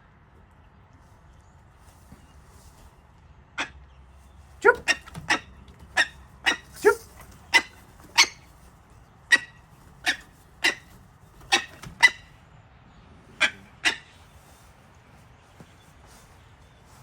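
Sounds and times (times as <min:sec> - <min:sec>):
bird of prey calling: 0:04.6 - 0:08.6, 0:09.2 - 0:12.4, 0:13.3 - 0:14.6.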